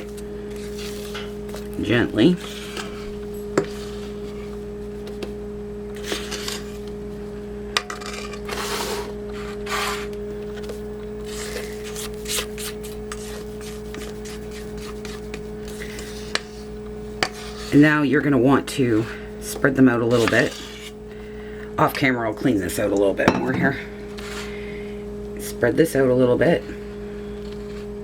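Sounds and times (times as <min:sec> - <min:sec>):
spatula scraping a bowl: 0:00.0 - 0:04.6, 0:05.9 - 0:06.9, 0:07.8 - 0:21.1, 0:23.3 - 0:24.6
steady hum: 0:00.0 - 0:28.0.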